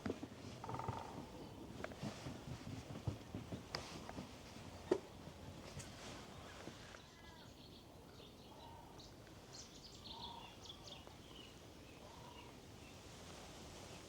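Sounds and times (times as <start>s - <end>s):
background hiss: 0.0s - 14.0s
lower bird calls: 0.6s - 1.7s, 6.3s - 13.0s.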